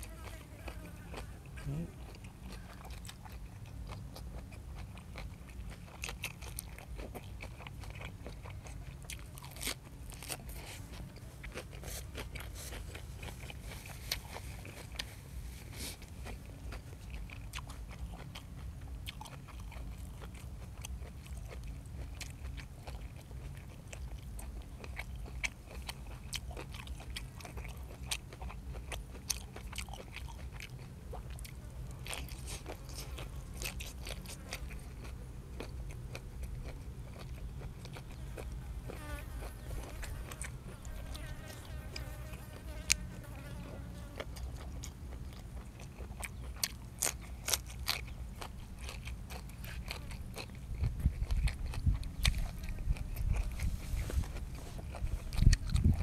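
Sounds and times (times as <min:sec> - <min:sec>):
person chewing and crunching: 0:00.0 - 0:56.0
wet mouth sounds: 0:48.9 - 0:56.0.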